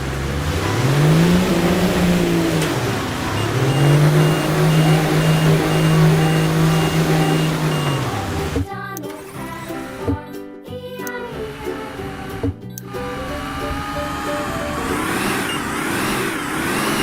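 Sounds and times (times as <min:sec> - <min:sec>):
vehicle engine revving: 0:00.0 - 0:08.6, 0:11.2 - 0:17.0
faint high beep: 0:03.2 - 0:08.4, 0:15.2 - 0:15.7.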